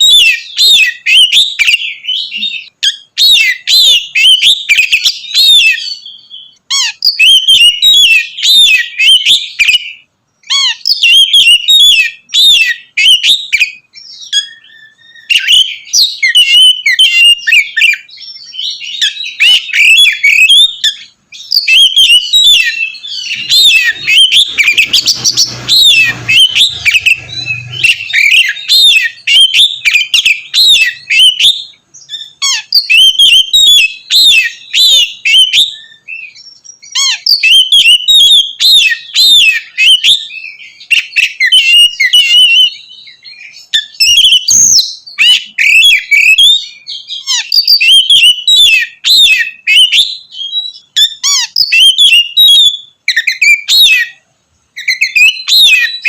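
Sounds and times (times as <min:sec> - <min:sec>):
bird singing whistled notes: 0:00.0 - 0:56.0.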